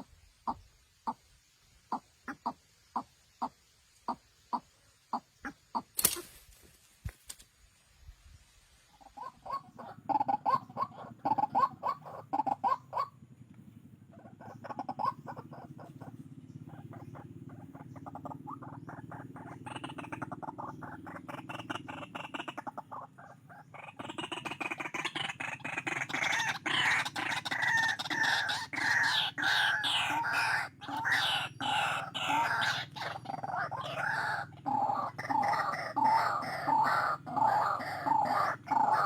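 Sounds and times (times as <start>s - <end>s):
fowl clucking: 9.0s - 13.2s, 14.1s - 39.0s.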